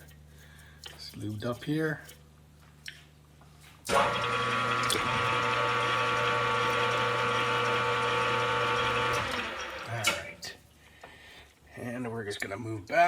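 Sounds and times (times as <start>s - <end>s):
lathe hum and whir: 3.9s - 10.4s.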